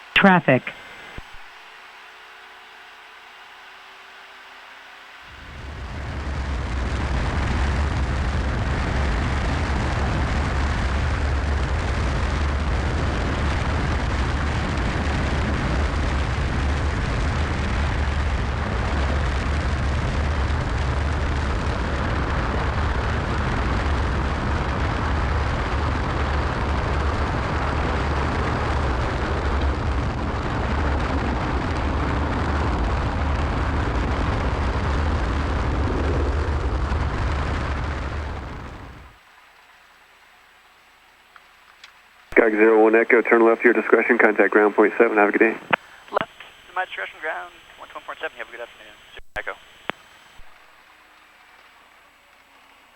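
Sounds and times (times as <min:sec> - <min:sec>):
airflow noise: 0:42.3 - 0:50.5.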